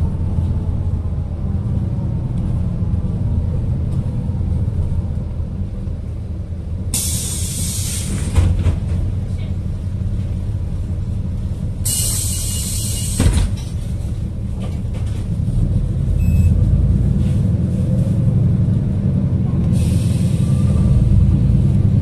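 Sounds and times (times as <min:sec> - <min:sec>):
bus engine and road rumble: 0:00.0 - 0:22.0
air brake hisses: 0:07.0 - 0:08.4, 0:11.8 - 0:13.4, 0:19.7 - 0:20.8.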